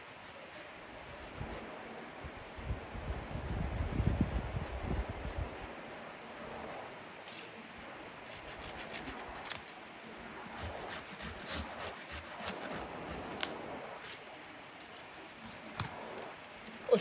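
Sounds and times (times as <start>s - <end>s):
hand saw rasping through wood: 8.2s - 9.7s, 10.4s - 16.4s.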